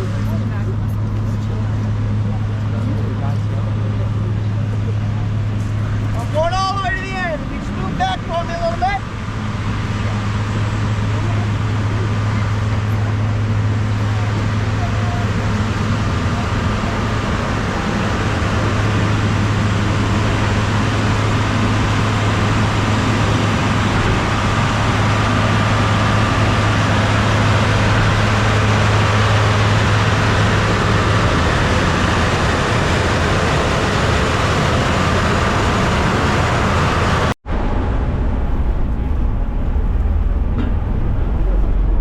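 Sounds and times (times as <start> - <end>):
duller vehicle running noise: 0.0 - 42.0
vehicle engine hum: 0.0 - 42.0.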